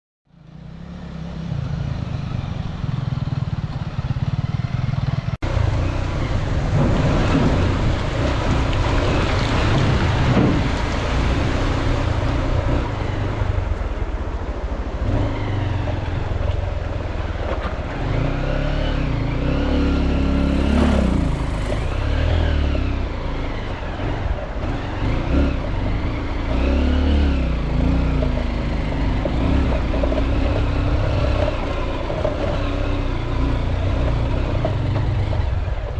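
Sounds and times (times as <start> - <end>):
dirt bike engine revving: 18.0 - 35.6.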